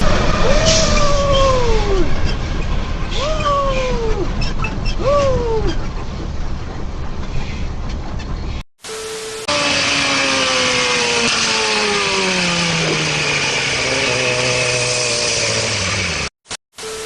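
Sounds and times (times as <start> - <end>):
brief steady tone: 8.8 - 9.5, 16.8 - 17.0
engine winding down: 9.2 - 16.4.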